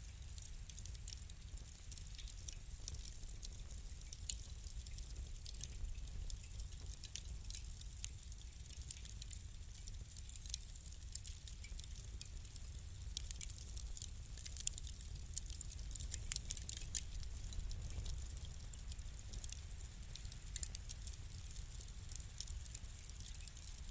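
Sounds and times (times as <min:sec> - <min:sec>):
wood fire crackling: 0:00.0 - 0:23.9
low steady rumble: 0:11.4 - 0:23.1.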